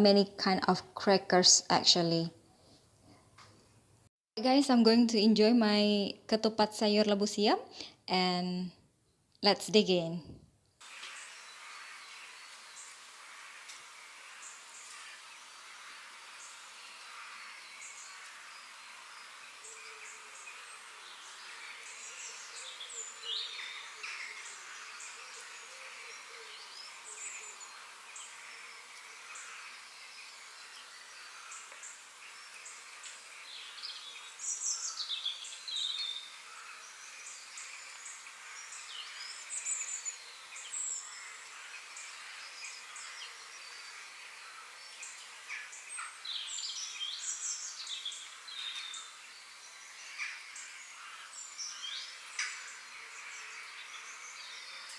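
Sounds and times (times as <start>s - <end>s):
outdoor background hiss: 0.0s - 54.9s
small birds chirping: 11.1s - 54.9s.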